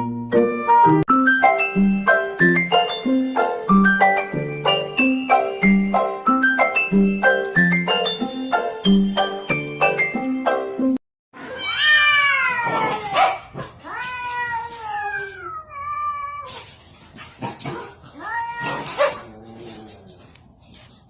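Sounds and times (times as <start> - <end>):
cat meowing: 13.9 - 16.6.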